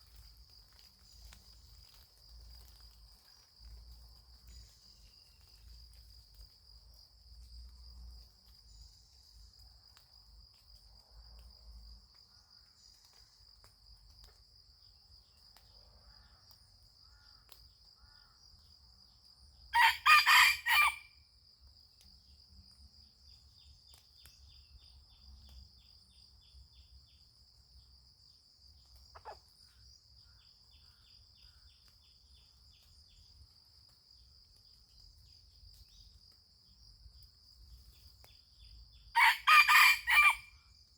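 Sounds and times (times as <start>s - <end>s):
faint insect trills: 0.0s - 40.9s
rooster crowing: 19.7s - 21.2s, 39.2s - 40.6s.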